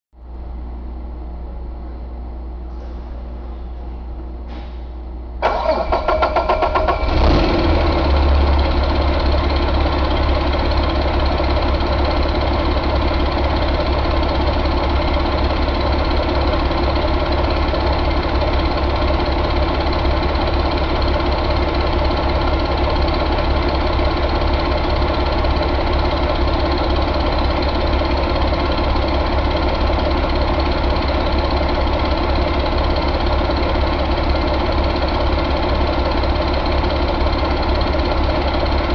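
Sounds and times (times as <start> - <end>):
diesel engine idling: 0.2 - 38.9
diesel engine starter cranking: 5.4 - 12.9.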